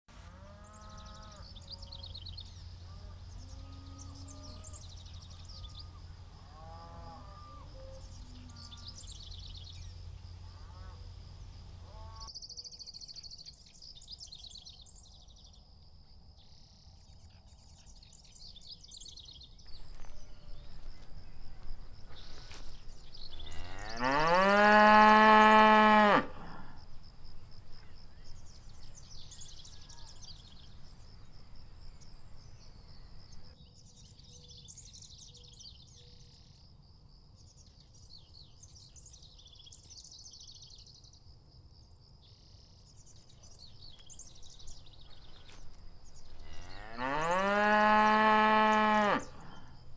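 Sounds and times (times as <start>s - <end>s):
cattle mooing: 23.4s - 26.7s, 46.4s - 49.6s.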